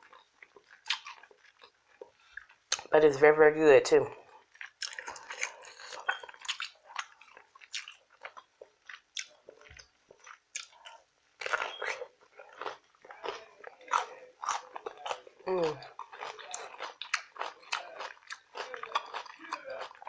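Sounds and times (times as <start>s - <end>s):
chewing and biting chicken: 0.0s - 2.9s, 4.5s - 20.0s
wet mouth clicks and smacks: 0.8s - 1.2s.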